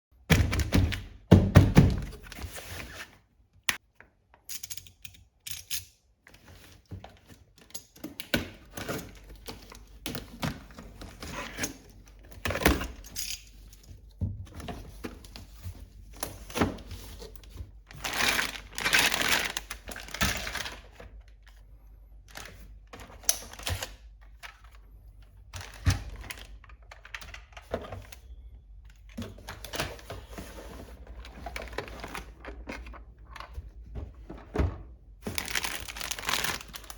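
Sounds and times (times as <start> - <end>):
packaging rustling: 14.6 - 21.6, 29.0 - 36.9.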